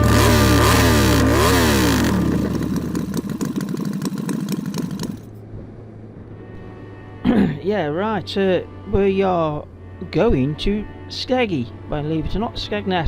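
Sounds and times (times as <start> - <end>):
motorcycle engine revving: 0.0 - 5.4.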